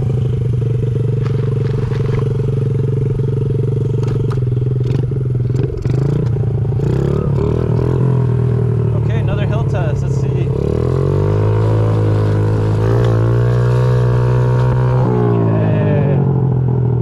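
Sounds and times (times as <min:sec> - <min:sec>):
motorcycle engine running: 0:00.0 - 0:17.0
clatter: 0:00.5 - 0:06.4.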